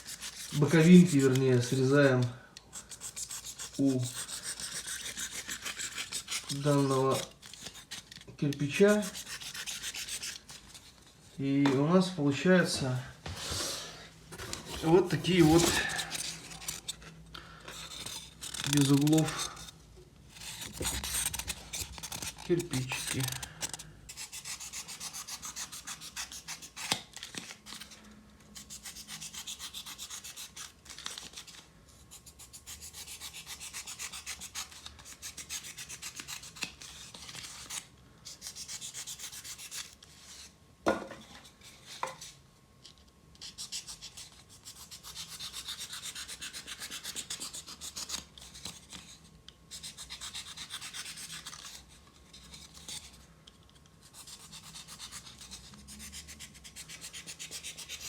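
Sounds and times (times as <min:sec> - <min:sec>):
knife cutting foam: 0:17.7 - 0:19.8, 0:20.4 - 0:27.2.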